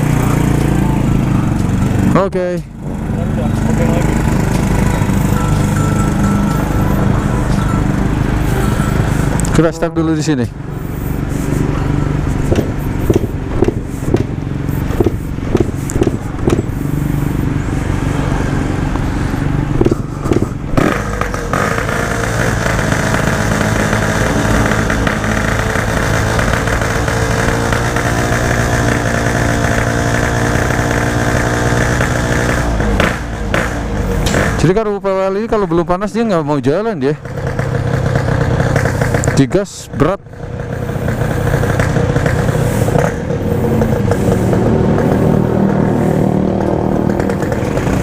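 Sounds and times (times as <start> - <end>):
motorcycle engine idling with pops: 1.4 - 2.0, 3.6 - 6.6, 12.3 - 17.0, 19.7 - 34.9, 37.2 - 48.0.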